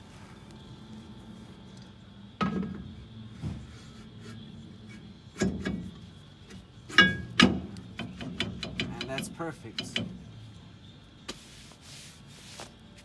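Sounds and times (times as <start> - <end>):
sharp metal knocks with ringing: 6.9 - 10.2.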